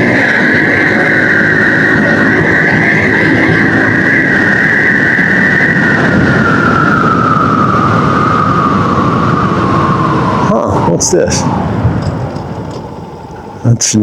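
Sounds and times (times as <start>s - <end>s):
dirt bike engine running: 0.0s - 7.1s
wind and road noise: 0.0s - 14.0s.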